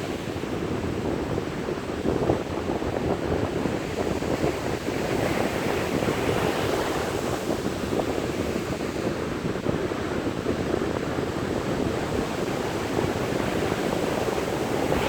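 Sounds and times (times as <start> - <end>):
wind buffeting microphone: 0.0 - 15.0
sea waves breaking on shore: 4.4 - 15.0.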